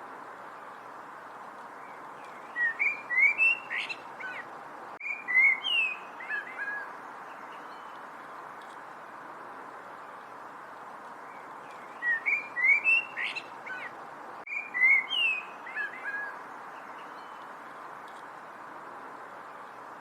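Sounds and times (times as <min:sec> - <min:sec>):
songbird chirping: 0:01.6 - 0:08.9, 0:11.2 - 0:18.9.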